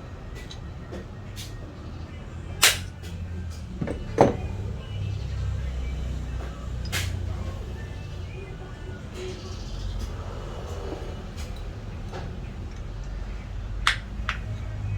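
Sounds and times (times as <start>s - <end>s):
hard objects knocking and clicking: 3.5s - 4.6s, 13.8s - 14.6s.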